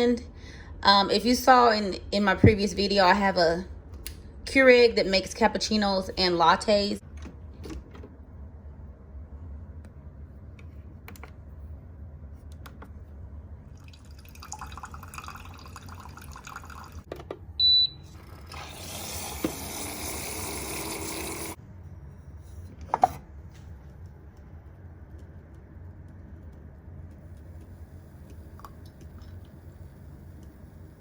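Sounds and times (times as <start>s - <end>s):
liquid filling a cup: 13.7s - 17.1s, 18.2s - 21.6s
coffee maker hissing: 18.2s - 21.6s.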